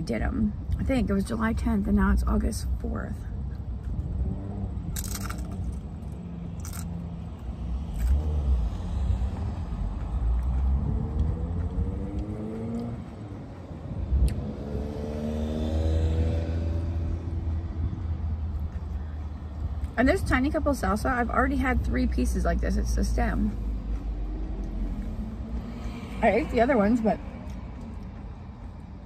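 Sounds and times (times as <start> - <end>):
low car rumble: 0.0 - 29.0
crunching chips and chewing: 5.0 - 5.9, 6.5 - 8.3
vehicle engine rising in pitch: 6.1 - 18.0.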